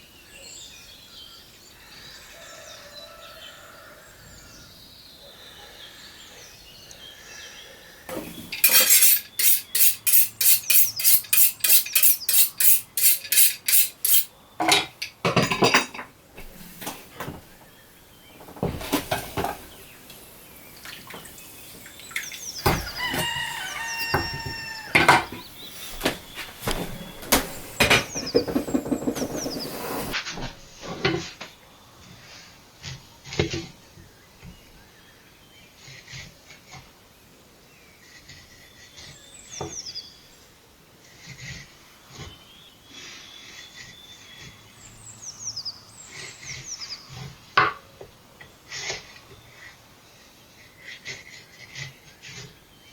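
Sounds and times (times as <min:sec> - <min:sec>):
clinks of utensils and dishes: 0:08.1 - 0:16.2
knife strokes on cutting board: 0:08.6 - 0:14.3.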